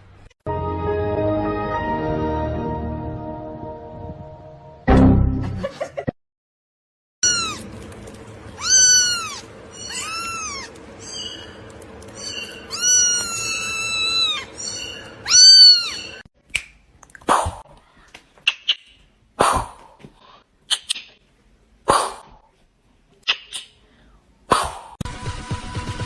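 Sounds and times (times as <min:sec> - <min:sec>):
cat meowing: 0:07.2 - 0:07.6, 0:08.6 - 0:11.3, 0:12.2 - 0:16.2.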